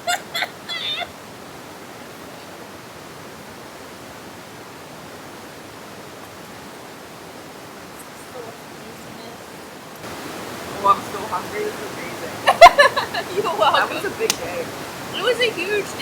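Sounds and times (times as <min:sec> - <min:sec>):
steady rushing noise: 0:10.0 - 0:16.0.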